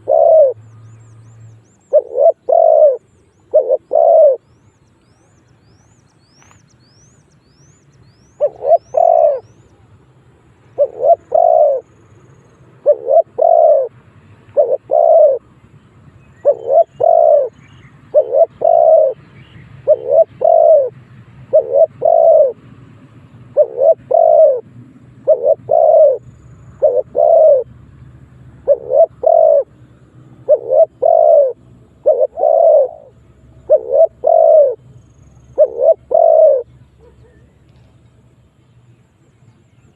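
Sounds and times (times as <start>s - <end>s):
dove cooing: 0.0s - 0.7s, 1.8s - 4.5s, 8.4s - 9.6s, 10.7s - 11.9s, 12.8s - 15.5s, 16.4s - 19.2s, 19.8s - 22.7s, 23.5s - 27.7s, 28.6s - 29.8s, 30.4s - 37.9s
small bird chirping: 0.0s - 9.8s, 16.2s - 20.9s.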